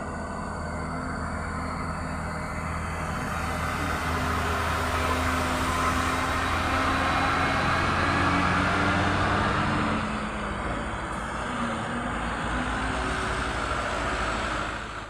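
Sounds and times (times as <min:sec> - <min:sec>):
heavy truck engine running: 0:00.0 - 0:15.0.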